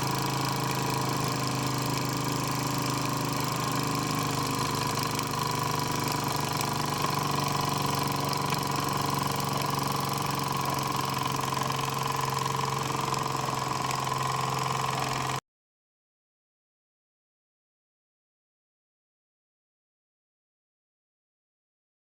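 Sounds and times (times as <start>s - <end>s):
model steam engine chuffing: 0.0s - 15.4s.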